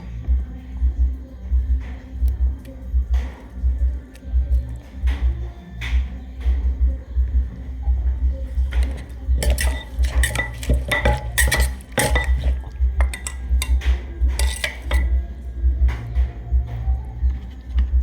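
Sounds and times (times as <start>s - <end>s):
steady low beat: 0.0s - 18.0s
utensils clinking against dishes: 8.5s - 15.2s.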